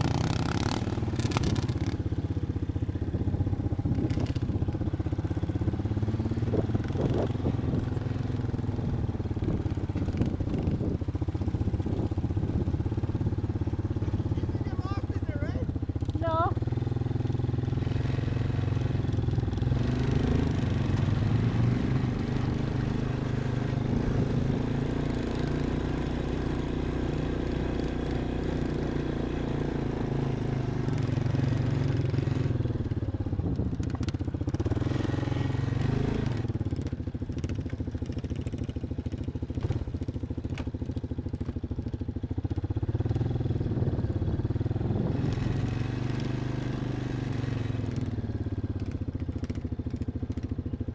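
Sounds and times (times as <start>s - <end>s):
vehicle engine running: 0.0s - 50.9s.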